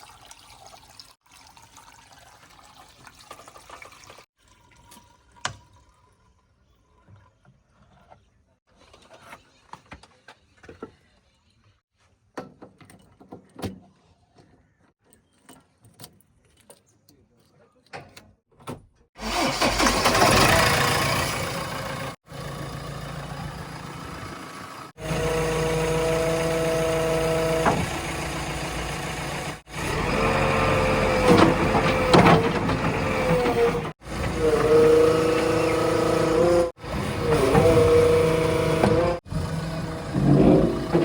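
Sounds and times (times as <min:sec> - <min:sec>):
diesel engines revving: 0:19.2 - 0:41.0.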